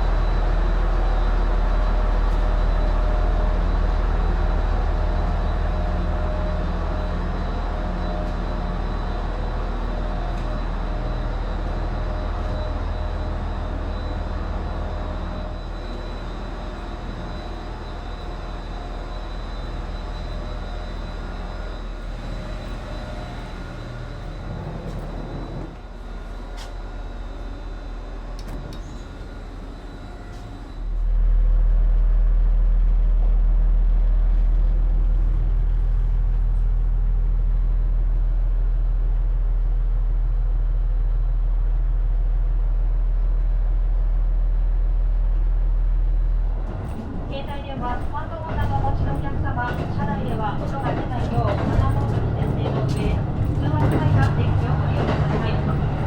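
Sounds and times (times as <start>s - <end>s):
train rumbling: 0.0s - 56.0s.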